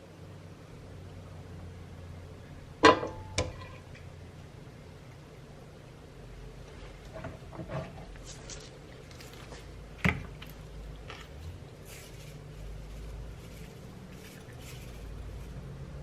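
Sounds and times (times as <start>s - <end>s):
handling rustles: 6.7s - 16.0s.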